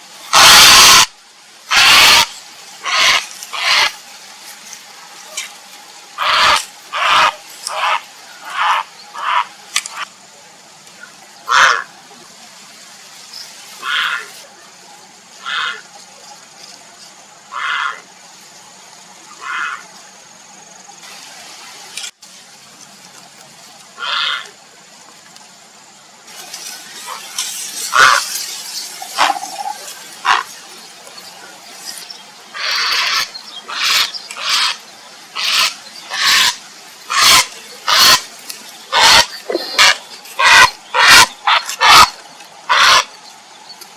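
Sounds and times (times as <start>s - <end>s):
heron harsh calls: 0.3s - 1.1s, 1.7s - 3.9s, 6.2s - 10.0s, 11.5s - 11.9s, 13.8s - 14.3s, 15.4s - 15.8s, 17.5s - 18.0s, 19.4s - 19.8s, 24.0s - 24.4s, 27.9s - 28.3s, 29.2s - 30.5s, 32.6s - 38.3s, 38.9s - 43.1s.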